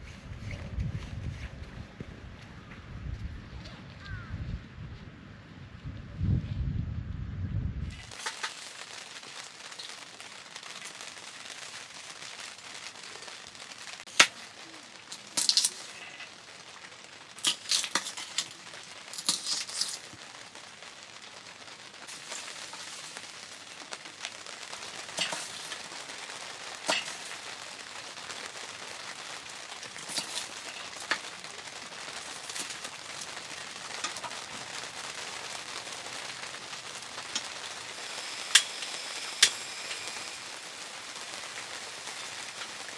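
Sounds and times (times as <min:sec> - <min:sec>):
fire cracking and popping: 0:07.9 - 0:42.9
fire hissing: 0:07.9 - 0:42.9.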